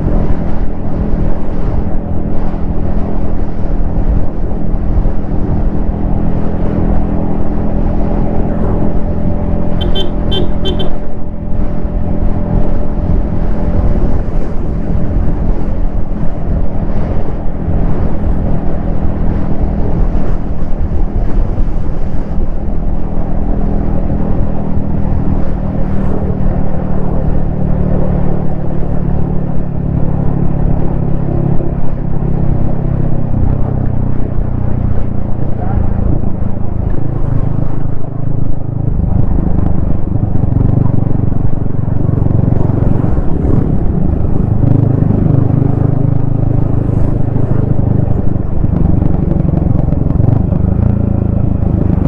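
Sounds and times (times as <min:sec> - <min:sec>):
camera wind rumble: 0:00.0 - 0:52.0
motorcycle engine running: 0:03.7 - 0:21.3, 0:34.0 - 0:52.0
quick high beeps: 0:09.8 - 0:11.0.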